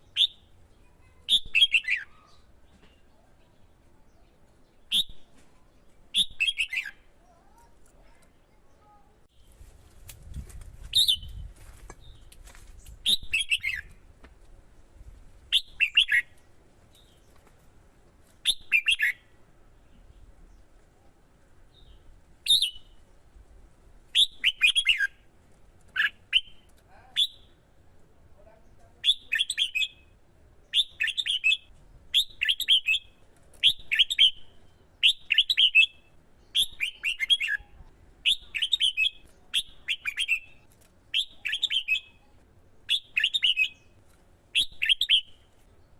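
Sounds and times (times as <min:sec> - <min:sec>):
bulbul song: 0:00.0 - 0:00.6, 0:06.1 - 0:07.2, 0:18.4 - 0:19.3, 0:29.0 - 0:44.0, 0:44.6 - 0:45.6.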